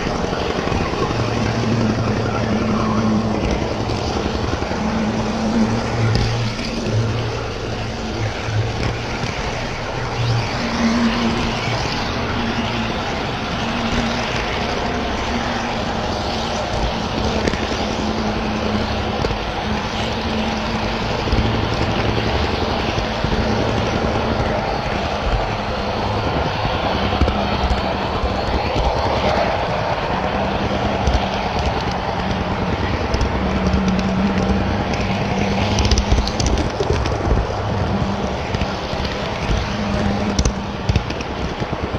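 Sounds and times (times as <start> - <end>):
low hum: 0.0 - 41.9.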